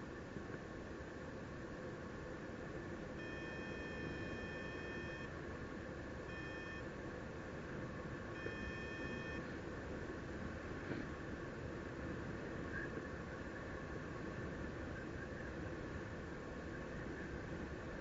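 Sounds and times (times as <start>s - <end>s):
electronic beeps: 3.2s - 5.3s, 6.3s - 6.8s, 8.4s - 9.4s.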